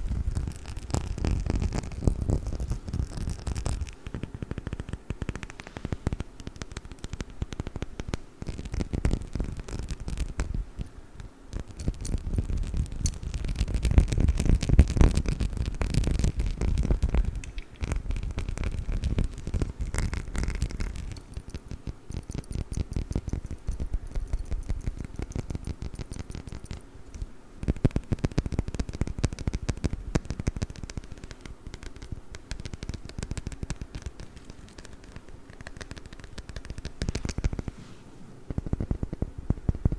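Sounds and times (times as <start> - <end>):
tapping and scratching on glass bottle: 11.5 - 37.7.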